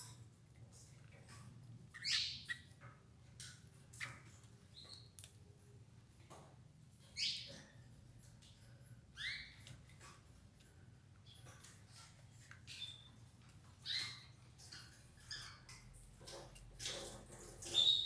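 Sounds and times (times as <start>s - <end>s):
canaries calling: 1.9s - 2.8s, 9.1s - 10.1s, 11.3s - 15.8s, 17.6s - 18.0s.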